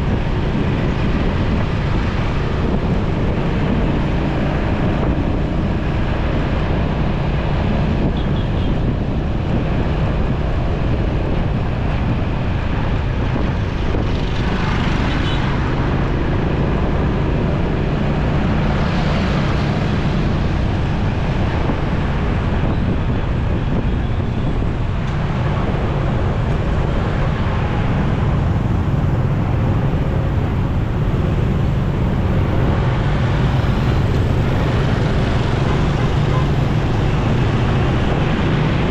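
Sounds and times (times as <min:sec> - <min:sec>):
motorcycle running: 0:00.0 - 0:38.9
surrounding traffic: 0:00.0 - 0:38.9
wind rushing over microphone: 0:00.0 - 0:38.9.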